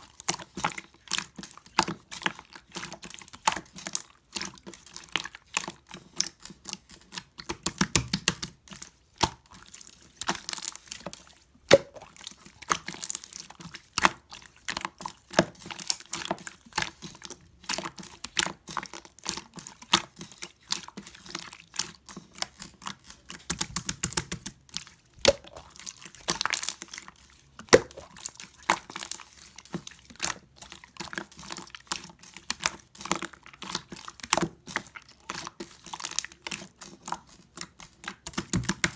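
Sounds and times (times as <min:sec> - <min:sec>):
slime squeezed by hand: 0:11.7 - 0:12.3, 0:25.2 - 0:26.7, 0:27.7 - 0:28.3.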